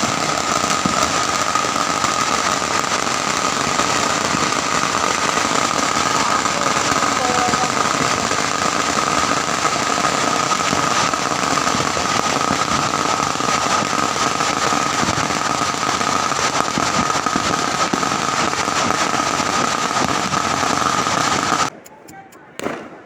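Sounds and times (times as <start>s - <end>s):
firecrackers crackling: 0.0s - 23.0s.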